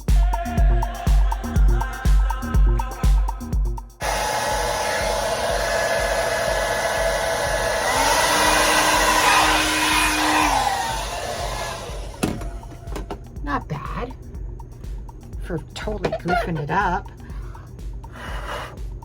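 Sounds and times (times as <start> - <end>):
hair dryer blowing: 4.0 - 13.2.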